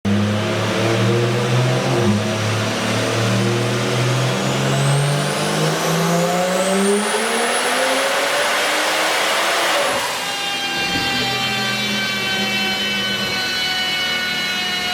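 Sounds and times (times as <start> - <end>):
car engine accelerating: 0.1 - 10.2
turbo whine: 9.8 - 14.9.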